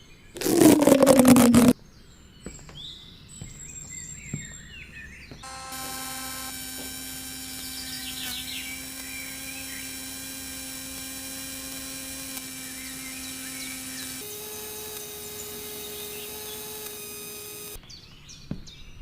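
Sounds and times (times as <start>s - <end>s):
small electric motor whining: 5.4s - 17.8s.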